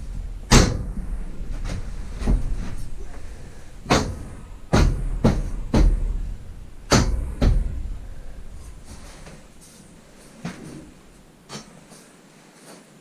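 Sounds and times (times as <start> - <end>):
sharp knocks and bangs with boom: 0.0 - 9.6.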